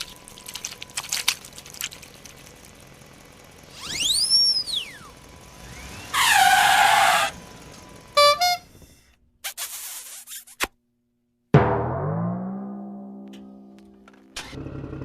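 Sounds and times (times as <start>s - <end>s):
cartoon whistle rising and falling: 3.7s - 5.1s
loud honk dropping in pitch: 8.2s - 8.8s.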